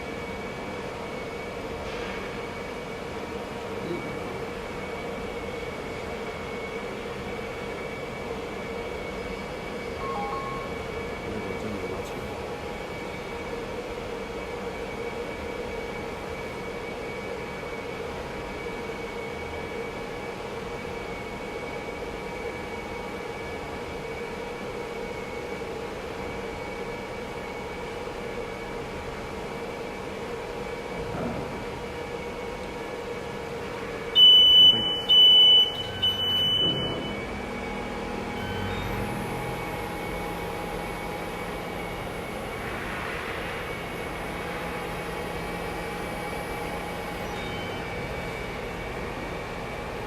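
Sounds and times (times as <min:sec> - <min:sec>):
hot-air blower and fans running: 0:00.0 - 0:50.0
electronic buzzer beeping: 0:34.2 - 0:37.4.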